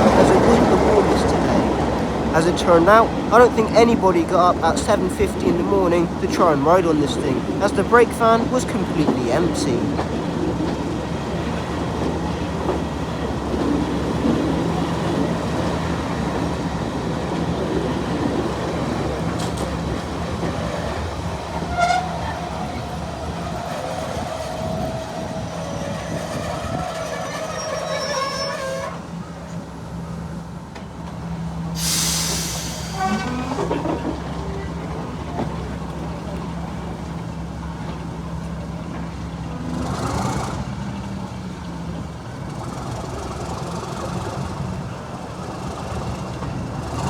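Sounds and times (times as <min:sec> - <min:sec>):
diesel train engine hum: 0:00.0 - 0:47.0
metallic wheel squeal: 0:21.6 - 0:29.0, 0:32.0 - 0:34.0
burst of hiss: 0:31.8 - 0:33.2.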